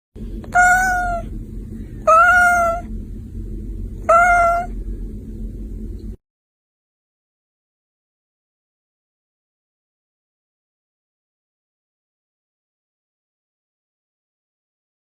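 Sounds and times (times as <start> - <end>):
low background hum: 0.2 - 6.2
kitten meowing: 0.5 - 1.3, 2.0 - 2.9, 4.0 - 4.7.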